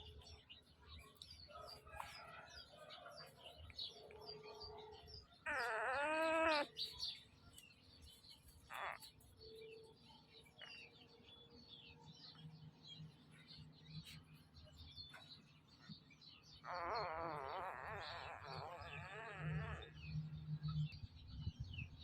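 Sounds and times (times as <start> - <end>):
puppy quavering whine: 4.1 - 7.0, 8.7 - 9.2, 16.6 - 20.3
puppies squeaking: 5.4 - 7.1, 8.6 - 9.2, 16.6 - 20.0.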